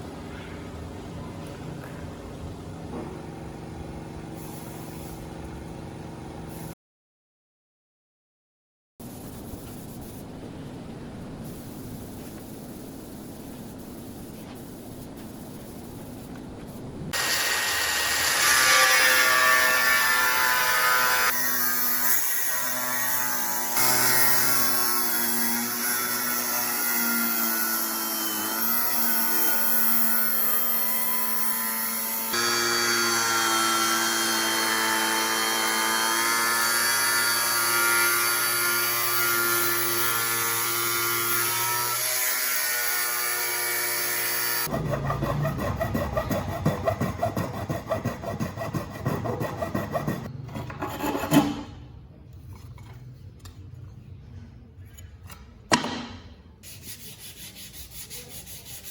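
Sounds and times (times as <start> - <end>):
power tool running: 17.2 - 21.3, 23.5 - 46.6
sanding strokes: 31.9 - 51.2, 56.6 - 58.9.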